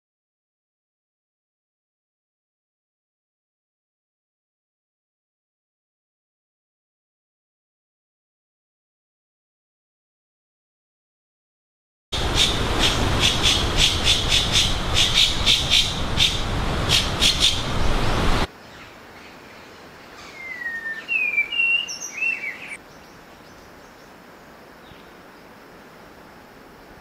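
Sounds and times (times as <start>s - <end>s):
quiet forest background: 12.2s - 27.0s.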